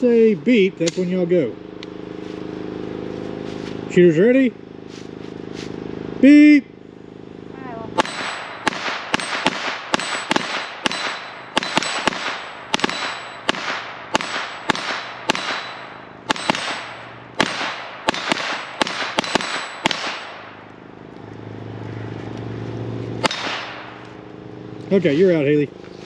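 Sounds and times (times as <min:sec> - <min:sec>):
rapid pistol shots with echo: 0:08.0 - 0:20.6, 0:23.2 - 0:24.0.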